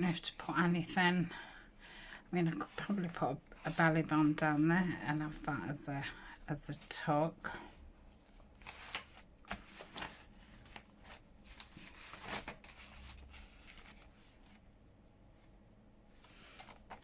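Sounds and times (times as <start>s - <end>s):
paper pages rustling: 8.1s - 14.6s, 15.4s - 17.0s.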